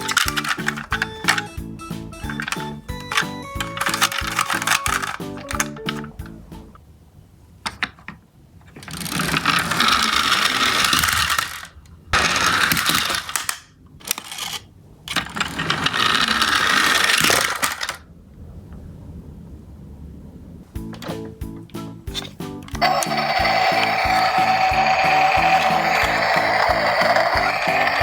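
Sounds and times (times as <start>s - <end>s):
toy wheels rattling on track: 0.0s - 6.0s, 8.6s - 18.0s, 22.1s - 28.0s.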